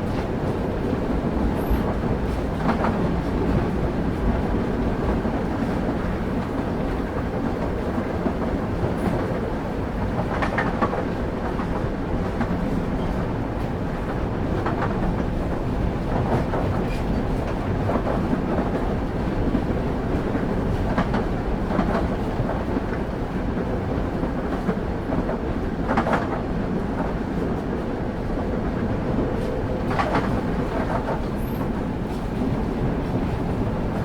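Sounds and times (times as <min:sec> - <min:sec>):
train wheel clacks: 0:00.0 - 0:34.0
train wheels rumbling on track: 0:00.0 - 0:34.0.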